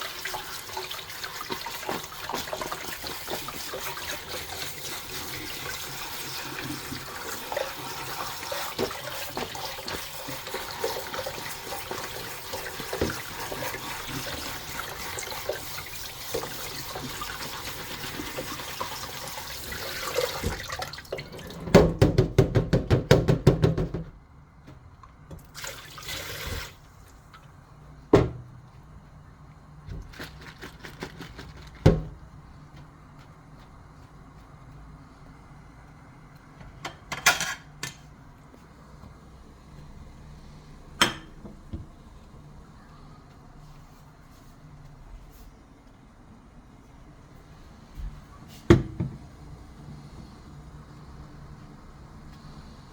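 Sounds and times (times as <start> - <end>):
water running and splashing: 0.0 - 21.8, 25.4 - 27.6.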